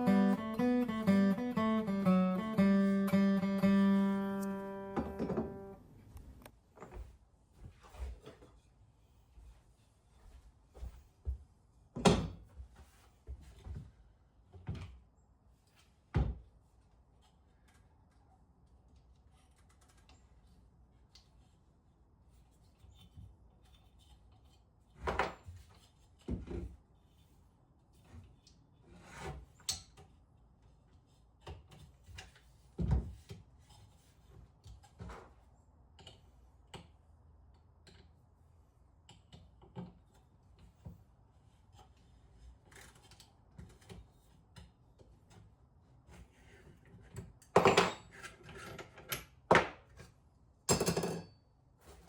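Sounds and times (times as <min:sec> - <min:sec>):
objects being handled and set down: 0:04.9 - 0:05.7.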